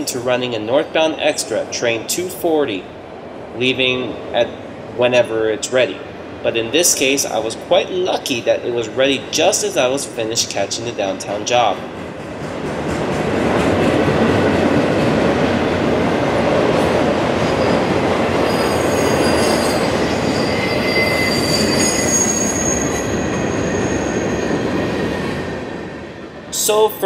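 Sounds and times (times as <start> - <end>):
train wheels rolling on rail: 0.0 - 27.0
high wheel squeal: 17.4 - 25.6.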